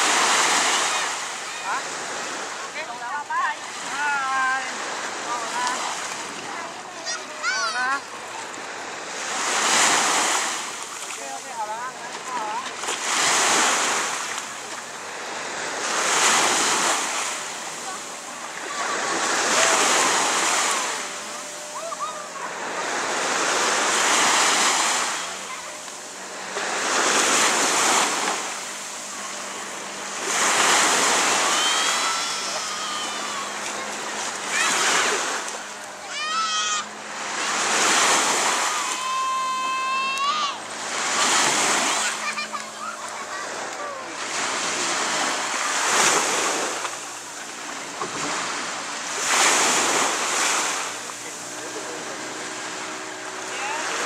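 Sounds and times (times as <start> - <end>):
sea waves washing onto beach: 0.0 - 54.0.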